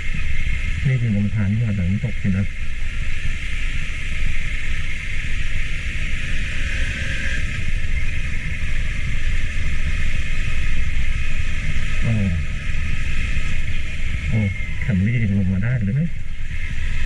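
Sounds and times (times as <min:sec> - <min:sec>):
steady hiss: 0:00.0 - 0:17.0
vehicle running along track: 0:00.0 - 0:17.0
wind buffeting microphone: 0:00.0 - 0:17.0.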